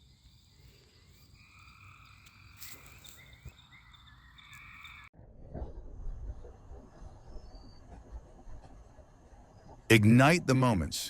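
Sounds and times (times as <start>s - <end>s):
chorus of high chirps: 0.0s - 5.1s.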